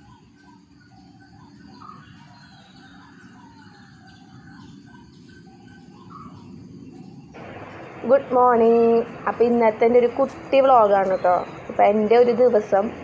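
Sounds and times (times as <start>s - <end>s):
birds calling and singing: 0.0s - 13.0s
low background rumble: 3.9s - 13.0s.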